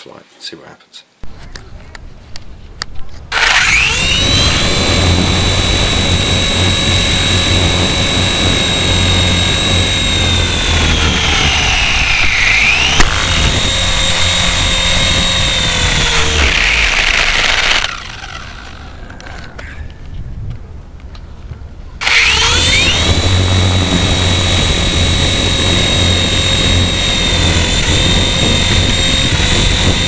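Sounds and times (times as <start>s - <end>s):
toy helicopter motor whine: 3.3s - 19.7s, 22.0s - 30.0s.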